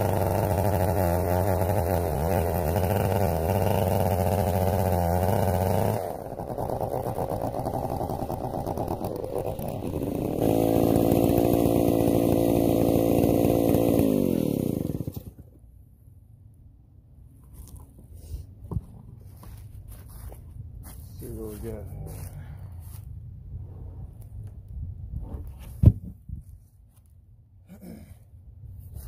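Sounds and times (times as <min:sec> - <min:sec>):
chainsaw engine revving and idling: 0:00.0 - 0:15.6.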